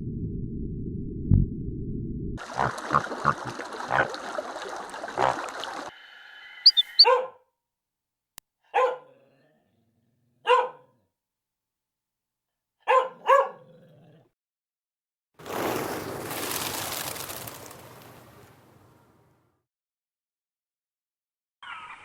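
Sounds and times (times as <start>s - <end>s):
low rumble: 0.0s - 2.4s
dog barking: 6.7s - 7.5s, 8.6s - 9.4s, 10.4s - 11.0s, 12.8s - 13.8s.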